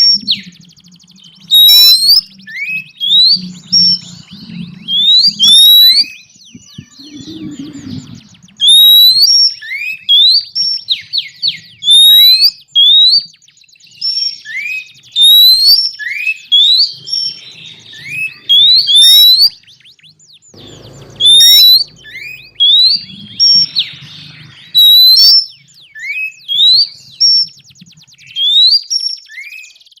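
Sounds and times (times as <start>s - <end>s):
bird whistling: 0.0s - 30.0s
fast buzzy bird rattles: 20.6s - 24.2s.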